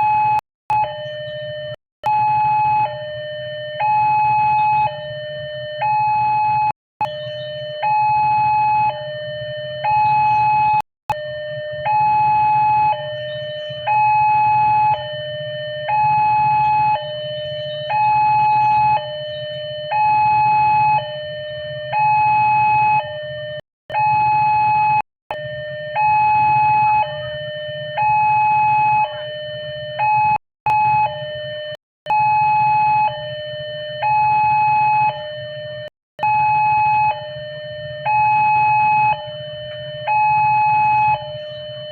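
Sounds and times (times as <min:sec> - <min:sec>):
level crossing two-tone alarm: 0:00.0 - 0:41.9.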